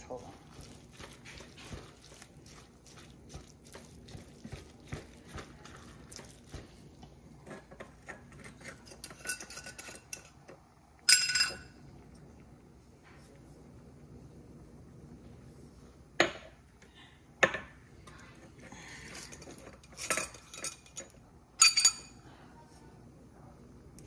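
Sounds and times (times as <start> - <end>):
dishes and utensils clattering: 7.4 - 11.7, 18.9 - 22.2.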